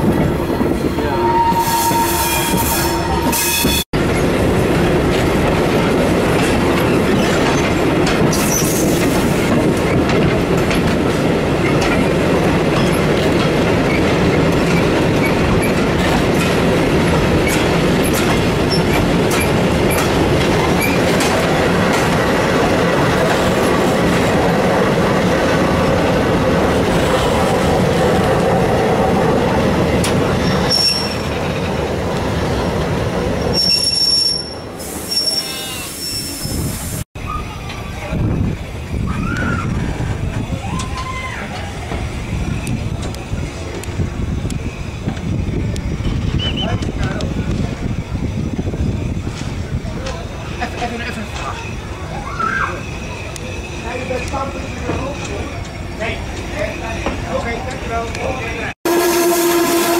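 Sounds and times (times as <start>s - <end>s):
train wheels rolling on rails: 0.0s - 59.9s
wheels clicking over rail joints: 5.1s - 24.6s.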